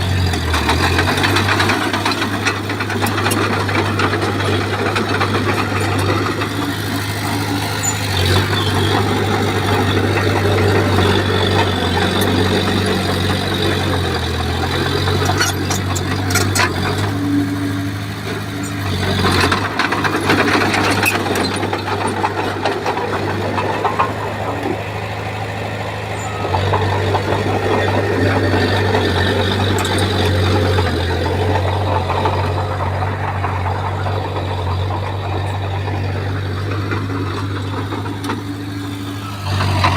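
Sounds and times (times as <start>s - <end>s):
bulldozer diesel engine: 0.0s - 39.9s
sharp knocks and clatter: 0.2s - 25.0s.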